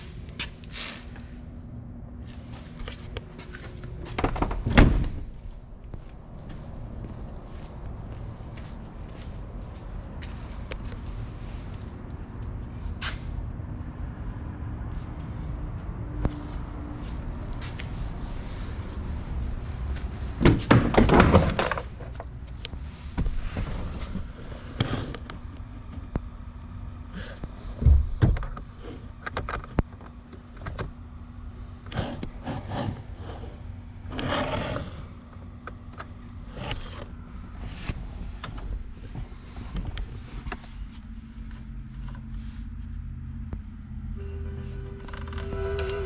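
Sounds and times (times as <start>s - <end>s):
knocks and clunks: 20.4s - 22.3s.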